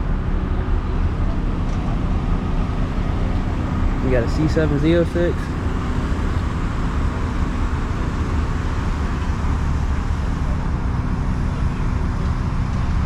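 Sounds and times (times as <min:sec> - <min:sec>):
car engine low rumble: 0:00.0 - 0:13.0.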